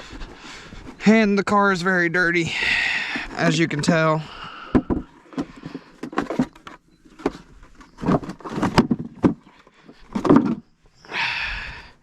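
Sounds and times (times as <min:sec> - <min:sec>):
objects knocking and clattering: 0:04.7 - 0:10.7.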